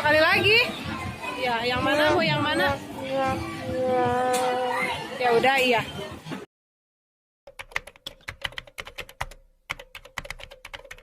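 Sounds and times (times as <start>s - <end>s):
rapid keyboard typing clicks: 7.5s - 11.0s.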